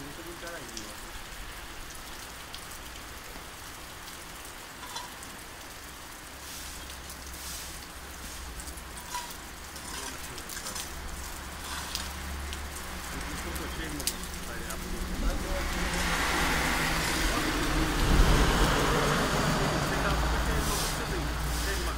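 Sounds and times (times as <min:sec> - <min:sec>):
rain falling on wet street: 0:00.0 - 0:21.9
loud drips: 0:04.7 - 0:05.6, 0:06.6 - 0:14.8
low rumble: 0:12.2 - 0:19.6.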